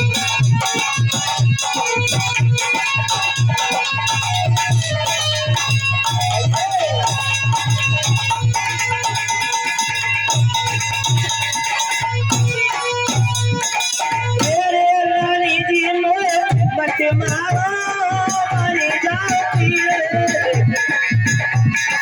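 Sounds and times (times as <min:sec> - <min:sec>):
steady drum beat: 0:00.0 - 0:22.0
person singing: 0:14.4 - 0:21.0.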